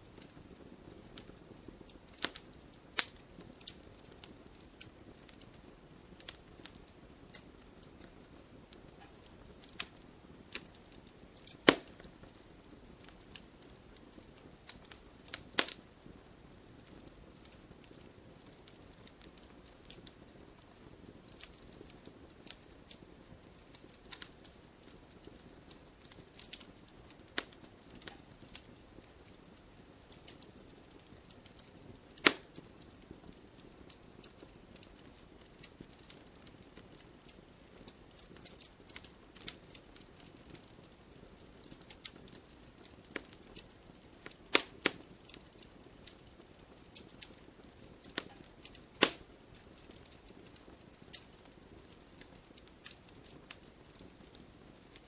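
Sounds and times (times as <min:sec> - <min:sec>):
campfire crackling: 0:00.0 - 0:55.0.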